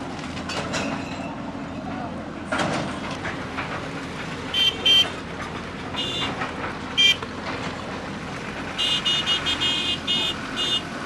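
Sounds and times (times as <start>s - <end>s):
street noise: 0.0s - 11.0s
vehicle horns honking: 4.5s - 5.2s, 6.0s - 6.4s, 7.0s - 7.2s, 8.8s - 11.0s.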